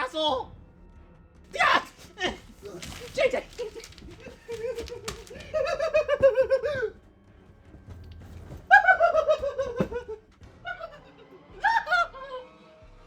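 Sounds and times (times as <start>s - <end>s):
shrill cackling laughter: 3.5s - 7.0s, 8.6s - 12.5s.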